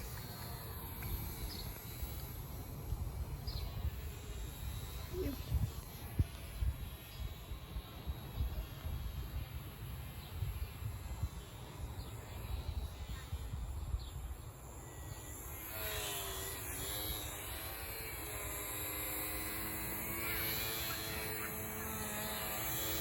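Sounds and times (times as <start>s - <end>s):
wind buffeting microphone: 0.0s - 14.5s
electric model aircraft motor whine: 0.0s - 23.0s.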